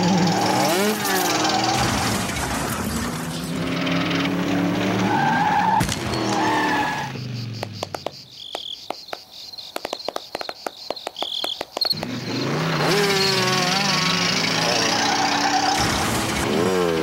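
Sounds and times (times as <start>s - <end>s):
sharp clicks: 7.5s - 12.2s.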